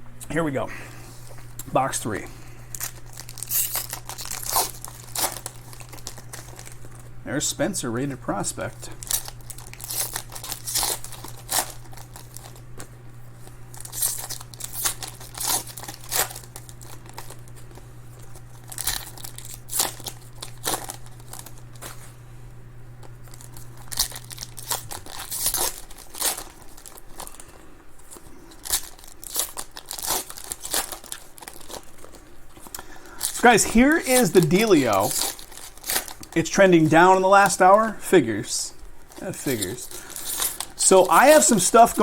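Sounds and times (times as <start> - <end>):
steady low hum: 0.0 - 42.0
foil wrappers tearing and crinkling: 2.6 - 7.2, 7.9 - 22.2, 23.0 - 42.0.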